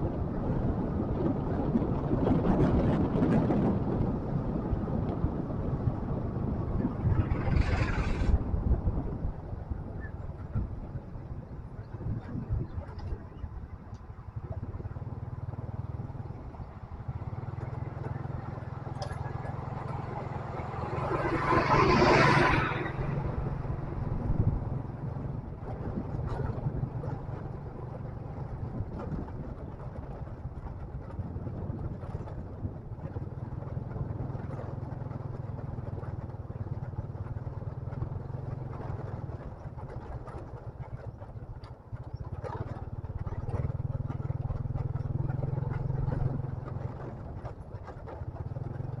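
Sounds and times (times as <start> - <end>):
motorcycle engine running: 0.0 - 49.0
loud rushing noise: 7.1 - 8.5
rattles and clatters: 25.4 - 49.0.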